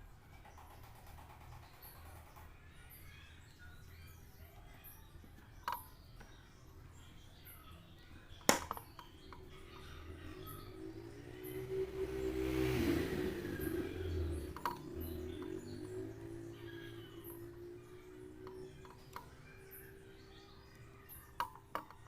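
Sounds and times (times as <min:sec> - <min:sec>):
sharp clicks or knocks: 0:08.5 - 0:09.0.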